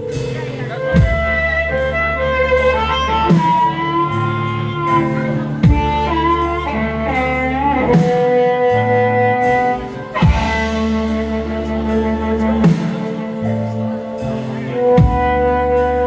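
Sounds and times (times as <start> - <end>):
heavy accented band hits: 0.0 - 16.0
live rock band playing: 0.0 - 16.0.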